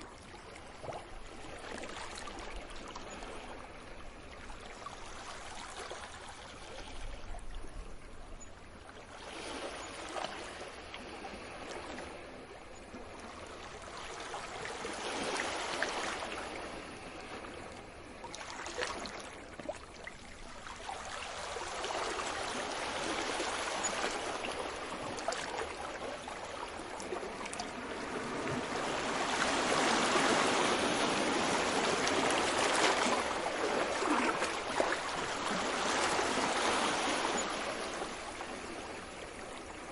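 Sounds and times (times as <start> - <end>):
ocean waves washing in: 9.0 - 19.5, 20.1 - 39.9.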